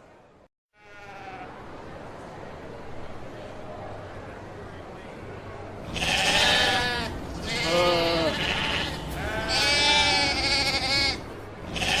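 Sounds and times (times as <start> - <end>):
sheep bleating: 5.9 - 12.0.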